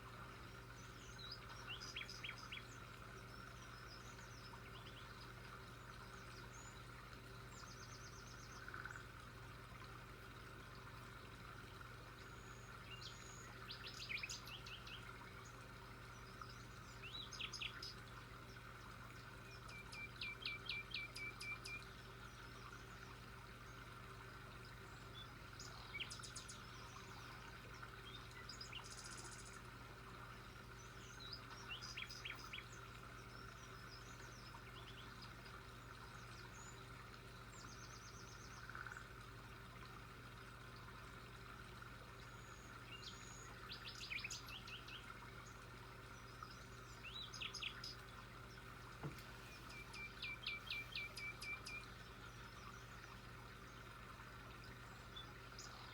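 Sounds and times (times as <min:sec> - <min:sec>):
faint steady hum: 0:00.0 - 0:55.9
birds chirping: 0:48.6 - 0:53.1.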